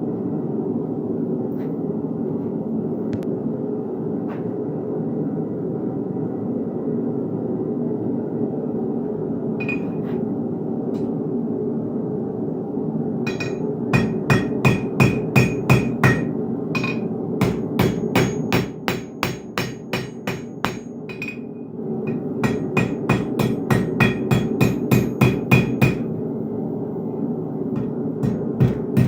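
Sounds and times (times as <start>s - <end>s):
steady hum: 0.0s - 29.0s
hammer striking steel on anvil: 13.3s - 21.5s, 22.1s - 26.1s, 27.8s - 29.0s.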